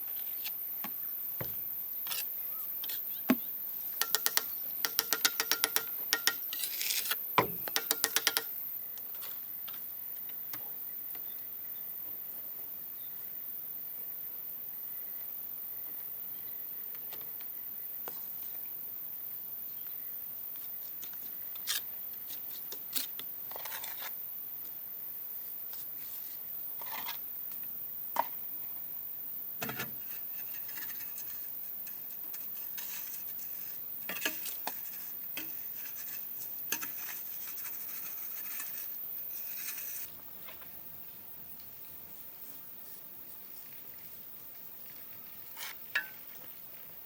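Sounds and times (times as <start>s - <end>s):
steady faint hiss: 0.0s - 47.0s
small clicks taps and scrapes: 4.0s - 10.6s.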